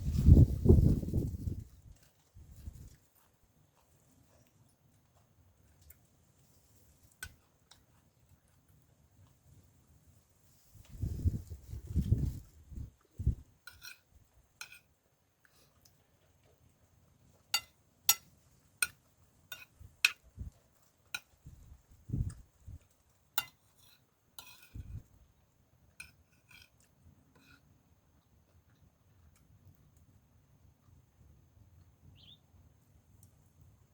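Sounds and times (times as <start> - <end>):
spoon clinking against dishes: 17.6 - 20.2, 23.4 - 24.8.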